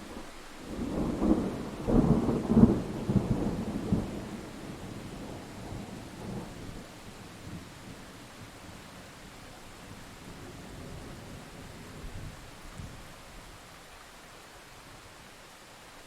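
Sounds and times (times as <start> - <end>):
thunder rumbling: 0.0 - 9.0
rain hiss: 0.0 - 16.0.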